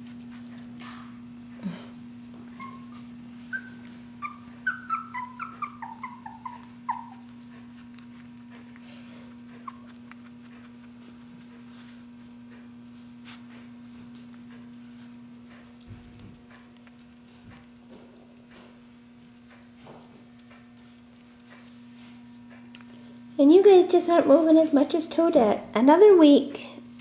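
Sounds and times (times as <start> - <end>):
puppy whimpering squeaks: 2.5 - 7.4, 9.5 - 10.9.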